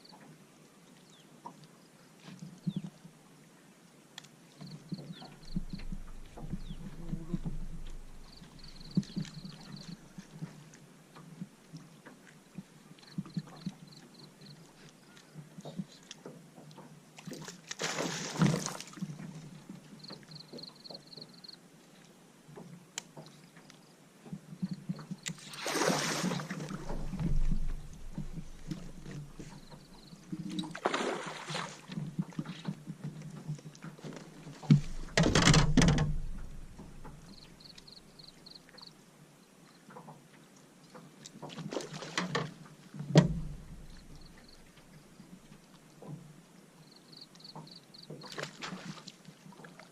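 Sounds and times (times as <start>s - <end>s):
paddle splashing in water: 4.9s - 21.0s, 25.2s - 38.4s, 40.9s - 46.3s, 47.5s - 49.9s.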